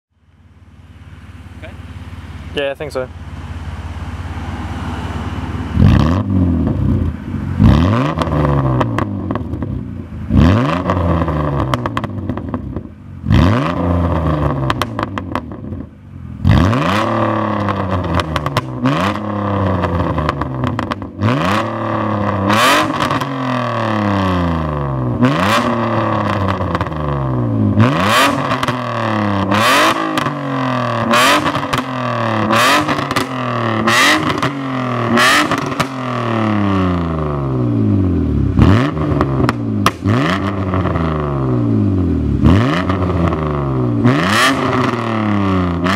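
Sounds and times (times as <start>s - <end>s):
car engine revving: 0.3s - 45.9s
exhaust pops and crackles: 14.4s - 15.9s, 17.6s - 21.2s, 39.1s - 41.0s.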